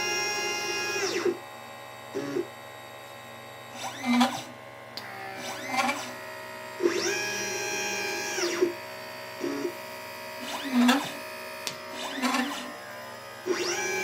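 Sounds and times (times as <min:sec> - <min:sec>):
stepper motors whining: 0:00.0 - 0:01.4, 0:03.7 - 0:14.0.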